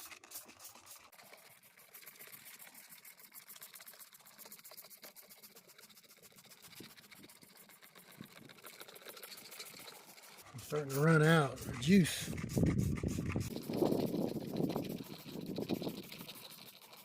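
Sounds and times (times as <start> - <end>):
brush scrubbing carpet: 0.0 - 17.0.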